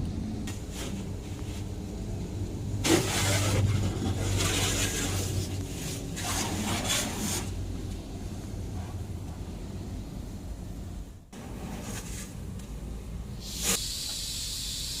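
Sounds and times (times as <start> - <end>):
low hum of wash machinery: 0.0 - 15.0
spray hissing against car: 13.4 - 15.0.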